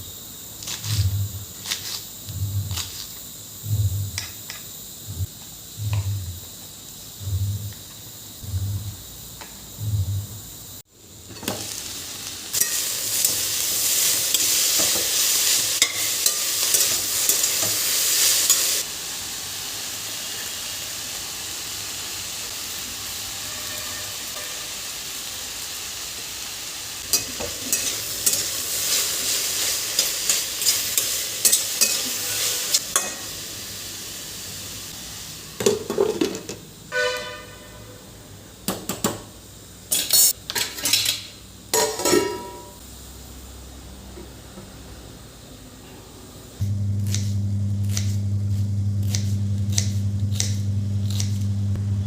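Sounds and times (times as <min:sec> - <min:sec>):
food sizzling in a pan: 0:00.0 - 0:38.6, 0:39.4 - 0:43.7, 0:46.6 - 0:51.7
utensil scraping a pan: 0:27.1 - 0:32.8
clinking utensils and dishes: 0:39.9 - 0:42.8.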